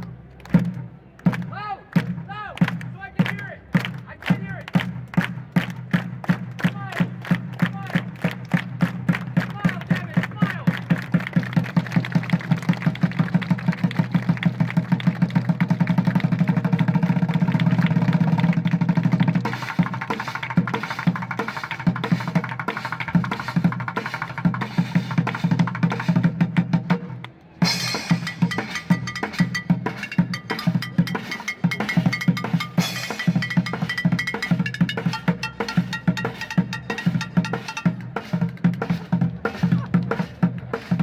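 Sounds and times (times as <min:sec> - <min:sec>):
drum beat and roll: 0:00.5 - 0:41.0.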